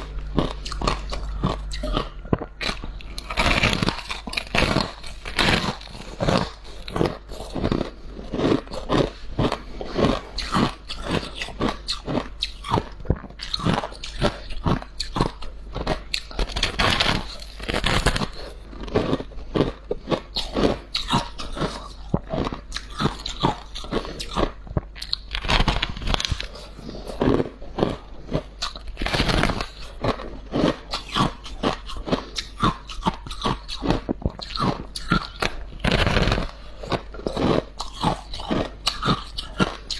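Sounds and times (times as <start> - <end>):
person chewing crunchy frost: 0.0 - 39.9.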